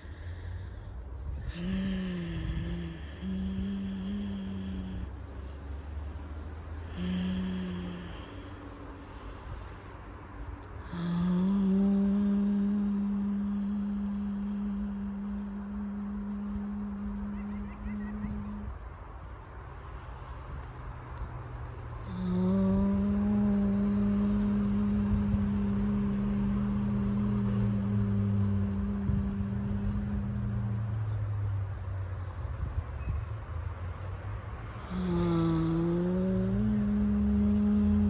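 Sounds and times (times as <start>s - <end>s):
woman humming: 1.3s - 5.5s, 6.8s - 9.4s, 10.1s - 19.0s, 22.0s - 32.0s, 34.8s - 38.0s
bird chirping: 11.2s - 19.3s
low rumble: 22.3s - 33.4s.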